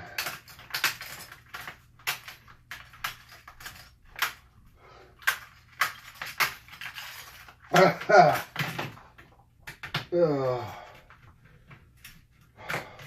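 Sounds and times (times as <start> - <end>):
sharp clicks and cracks: 0.0 - 4.5, 5.2 - 10.1.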